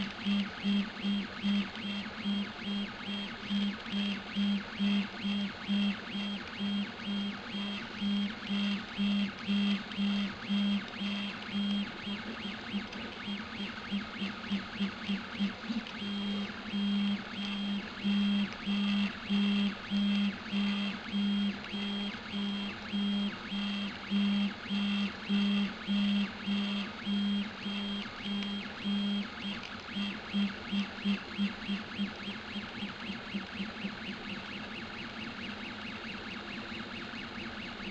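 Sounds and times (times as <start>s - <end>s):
printer stepper motors whining: 0.0s - 37.9s.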